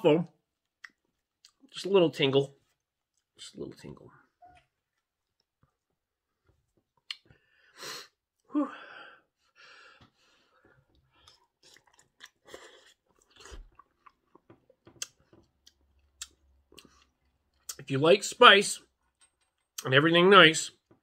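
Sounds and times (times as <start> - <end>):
chewing with wet mouth clicks: 0.6 - 1.7, 10.9 - 17.8.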